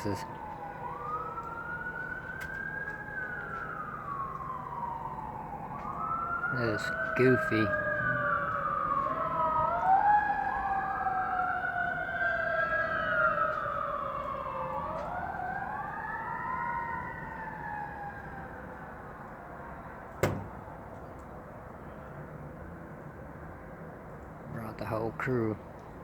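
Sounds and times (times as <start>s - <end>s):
emergency vehicle siren wailing: 0.0s - 26.0s
sharp knock: 20.2s - 20.9s.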